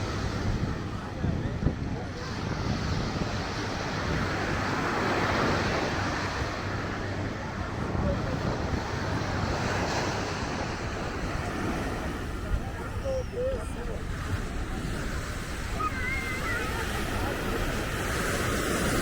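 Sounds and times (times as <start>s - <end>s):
surf: 0.0s - 19.0s
wind on microphone: 0.0s - 19.0s
scattered voices: 11.1s - 19.0s.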